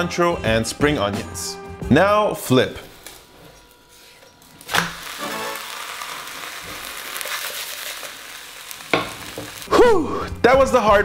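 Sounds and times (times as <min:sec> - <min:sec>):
light background music: 0:00.0 - 0:07.0, 0:09.0 - 0:11.0
egg sizzling in a pan: 0:04.0 - 0:10.0
crepe landing in frying pan: 0:04.6 - 0:09.7.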